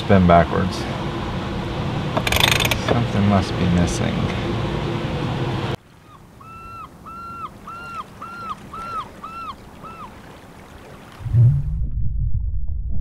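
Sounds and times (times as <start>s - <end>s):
bird whistling: 6.0s - 10.1s.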